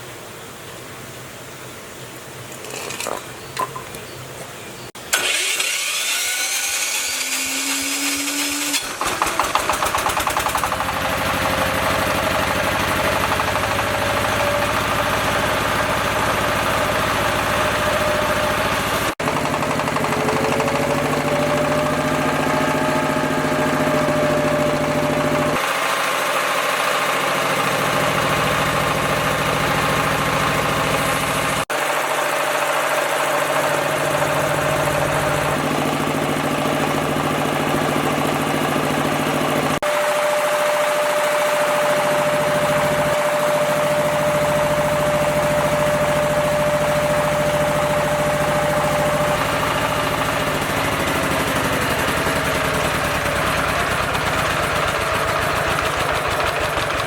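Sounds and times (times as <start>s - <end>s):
generator engine starting and idling: 4.8s - 57.0s.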